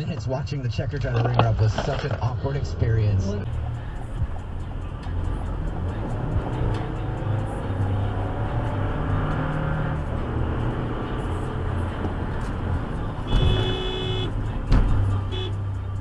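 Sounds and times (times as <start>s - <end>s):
car road and engine rumble: 0.0s - 16.0s
sharp loud thump: 13.2s - 14.1s.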